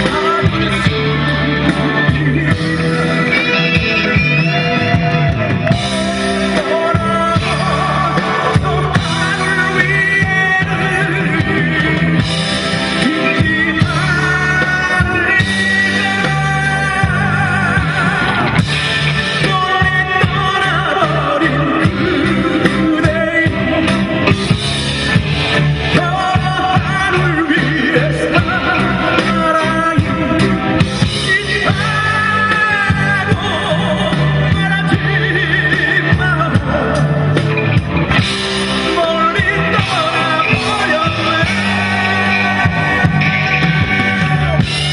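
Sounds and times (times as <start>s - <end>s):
drum kit beat: 0.0s - 44.9s
person singing with vibrato: 0.0s - 44.9s
rock band playing: 0.0s - 44.9s.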